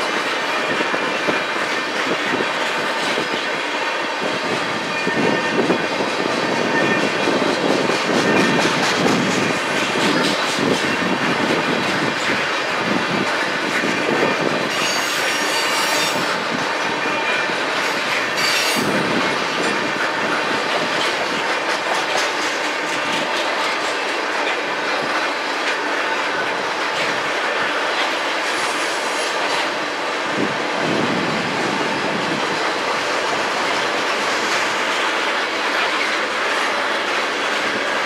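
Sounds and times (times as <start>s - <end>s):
train wheels rumbling over rails: 0.0s - 38.0s
high-pitched wheel squeals: 14.7s - 16.4s, 18.4s - 18.9s.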